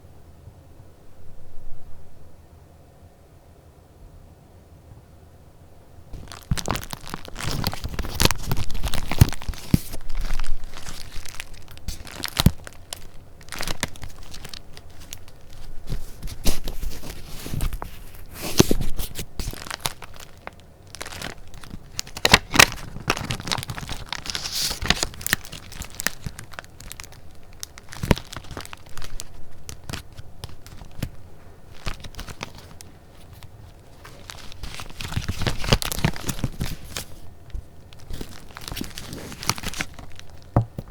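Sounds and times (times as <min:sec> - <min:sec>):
paper rustling and crinkling: 0:06.1 - 0:40.9.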